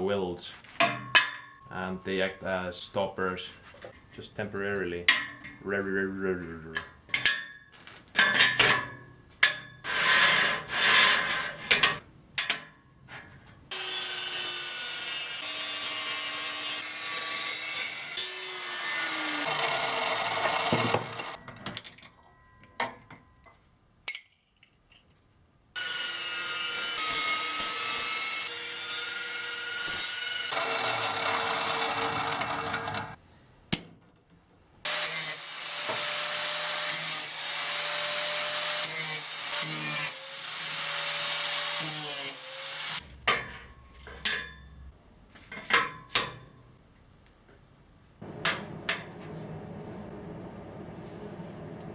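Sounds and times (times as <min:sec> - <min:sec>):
angle grinder on steel: 0:13.7 - 0:21.4, 0:25.8 - 0:33.2, 0:34.9 - 0:43.0.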